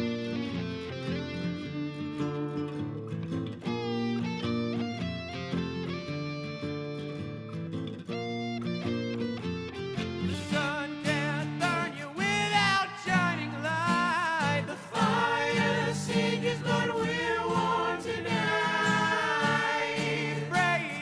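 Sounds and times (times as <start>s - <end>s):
guitar accompaniment: 0.0s - 21.0s
person singing wordlessly: 10.4s - 21.0s.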